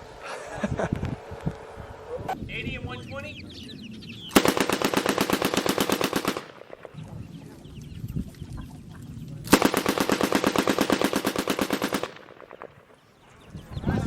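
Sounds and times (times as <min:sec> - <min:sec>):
machine-gun fire: 0:04.3 - 0:07.0, 0:09.4 - 0:13.1
low rumble: 0:06.4 - 0:09.6.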